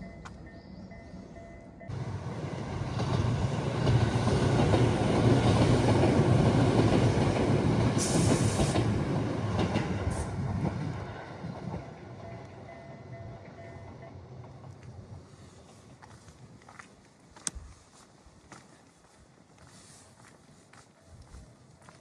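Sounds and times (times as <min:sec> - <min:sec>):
train rumbling past: 0:00.0 - 0:16.6.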